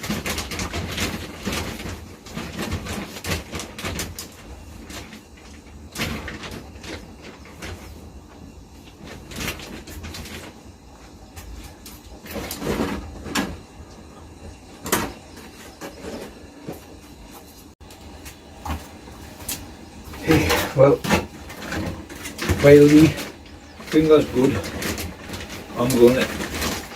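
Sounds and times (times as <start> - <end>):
objects knocking and clattering: 17.8 - 26.9.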